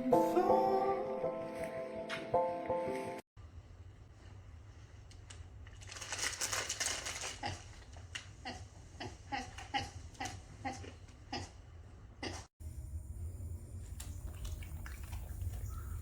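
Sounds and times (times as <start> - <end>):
steady low hum: 11.6 - 16.0.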